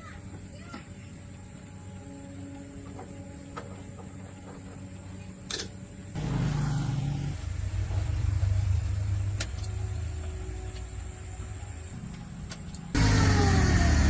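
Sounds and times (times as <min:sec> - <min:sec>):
truck engine starting: 0:06.2 - 0:10.5, 0:12.4 - 0:14.0.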